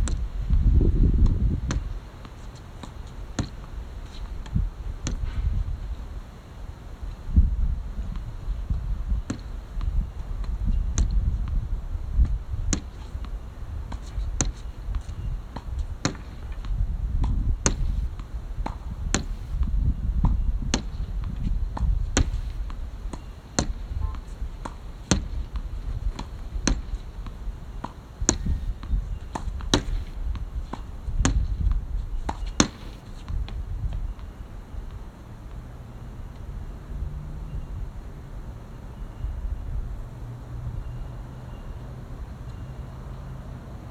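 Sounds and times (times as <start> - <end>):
rackets hitting shuttlecock: 12.7 - 18.0, 20.3 - 31.6, 32.3 - 34.2.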